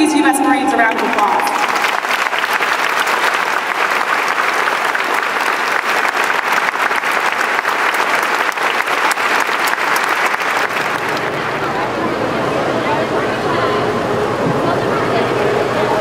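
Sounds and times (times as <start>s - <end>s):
crowd applauding: 0.8s - 12.2s.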